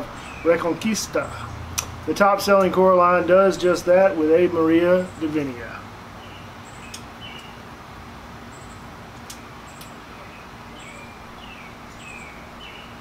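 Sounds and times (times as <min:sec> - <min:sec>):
songbirds chirping: 0:00.0 - 0:13.0
steady low hum: 0:00.0 - 0:13.0.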